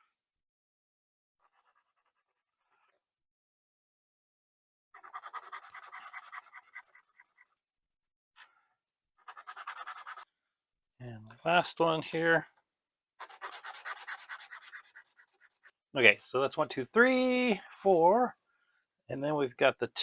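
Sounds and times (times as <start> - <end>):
sanding stick rubbing plastic: 5.0 - 7.5, 9.2 - 10.2, 13.2 - 15.8.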